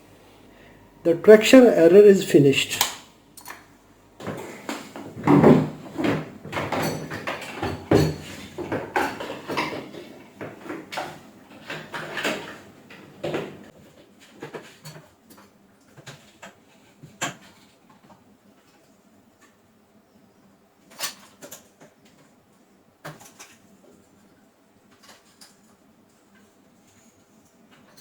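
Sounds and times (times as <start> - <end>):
objects clattering on hard surface: 4.2 - 18.8.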